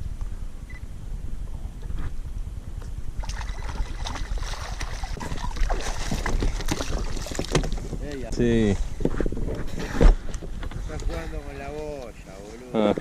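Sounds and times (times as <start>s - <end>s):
wind on microphone: 0.0s - 12.3s
water splashing around a kayak: 3.2s - 8.3s.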